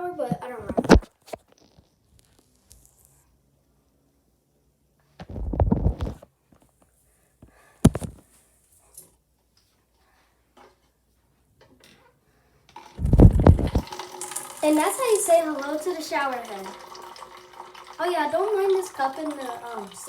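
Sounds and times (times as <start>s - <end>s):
rumbling scrape: 13.0s - 13.8s.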